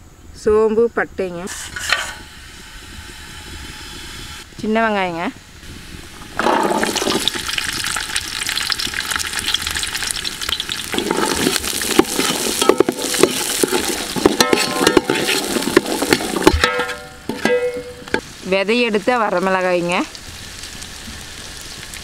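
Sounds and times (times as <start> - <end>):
metal ladle scraping metal pot: 1.5 - 2.2, 10.5 - 18.2
shallots sizzling in hot oil: 2.1 - 22.0.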